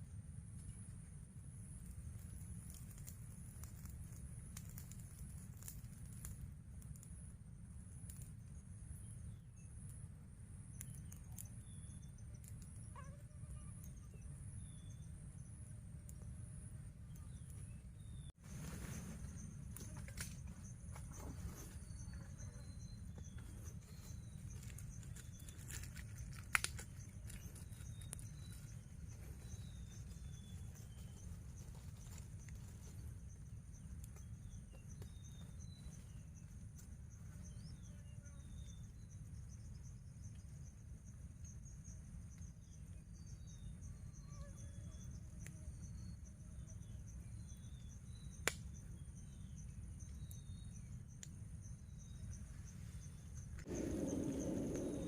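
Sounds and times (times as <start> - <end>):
insect chirps: 0.0 - 55.0
insects droning: 0.0 - 55.0
low rumble: 53.6 - 55.0.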